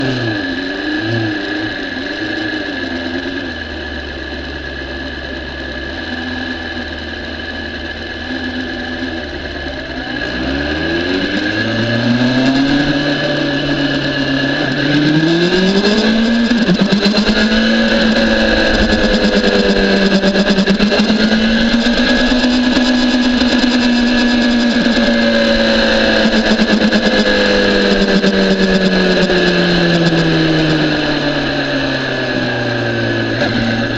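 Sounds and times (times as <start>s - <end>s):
motorcycle engine revving: 0.0s - 33.9s
wind rush on microphone: 11.2s - 33.9s.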